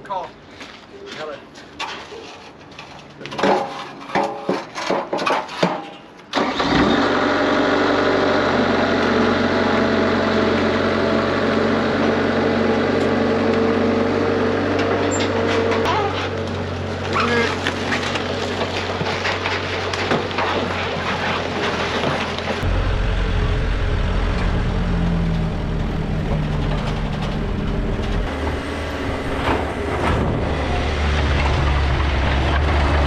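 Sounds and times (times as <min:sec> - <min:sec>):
knocks and clanks: 0:01.8 - 0:06.1, 0:17.9 - 0:33.0
engine starting and idling: 0:06.3 - 0:08.7.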